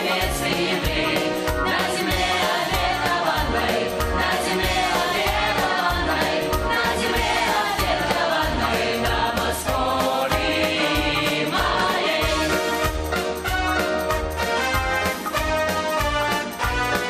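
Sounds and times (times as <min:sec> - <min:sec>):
group of voices singing: 0:00.0 - 0:13.0.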